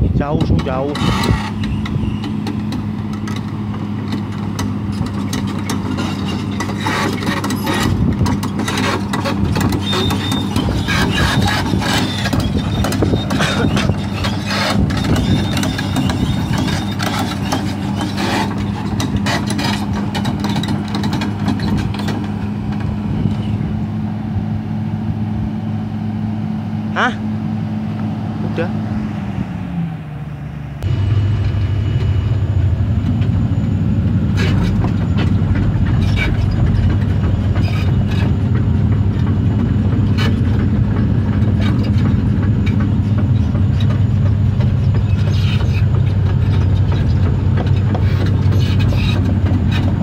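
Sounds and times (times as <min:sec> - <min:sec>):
crawler tracks rattling and clanking: 0:00.0 - 0:25.2, 0:30.8 - 0:50.0
diesel engine running: 0:00.0 - 0:50.0
faint high squeal: 0:01.5 - 0:02.3.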